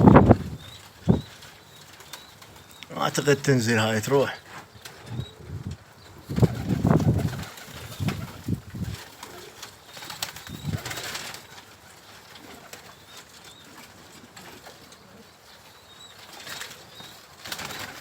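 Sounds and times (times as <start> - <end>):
faint pigeon cooing: 0.0 - 18.0
pigeon wings flapping: 6.3 - 14.8, 16.3 - 18.0.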